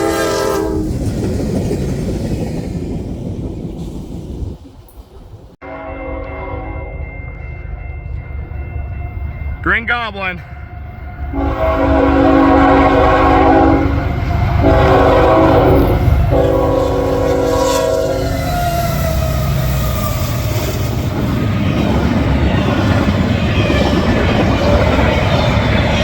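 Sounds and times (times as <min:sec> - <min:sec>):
train air horn blasts: 0:00.0 - 0:00.9, 0:05.6 - 0:07.1, 0:10.4 - 0:19.2
train wheels rumbling on rails: 0:00.0 - 0:05.6, 0:10.4 - 0:26.0.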